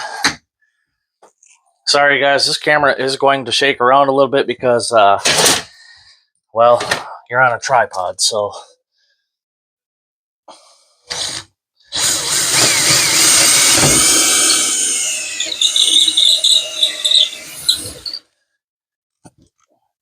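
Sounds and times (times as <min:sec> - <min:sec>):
cordless drill whining: 0:11.1 - 0:18.2.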